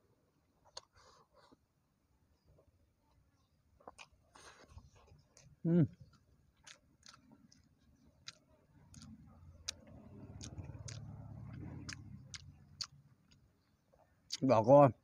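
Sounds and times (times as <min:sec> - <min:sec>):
person chewing: 0:00.6 - 0:01.6, 0:03.8 - 0:14.4
low hum: 0:08.8 - 0:13.2
wet mouth clicks: 0:09.0 - 0:13.4.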